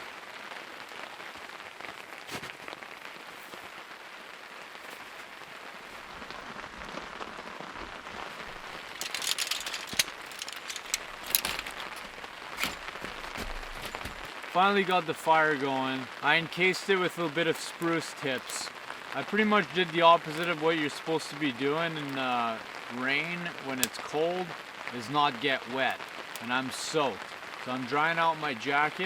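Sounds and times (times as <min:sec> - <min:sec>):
steady rain falling: 0:00.0 - 0:29.0
sharp clicks and crackles: 0:07.8 - 0:14.6, 0:20.3 - 0:20.6, 0:23.8 - 0:24.1.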